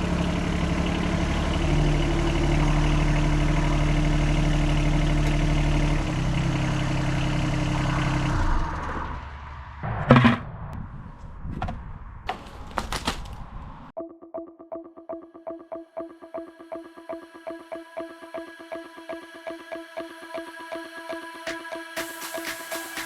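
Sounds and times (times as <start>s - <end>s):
diesel tractor engine running: 0.0s - 9.2s.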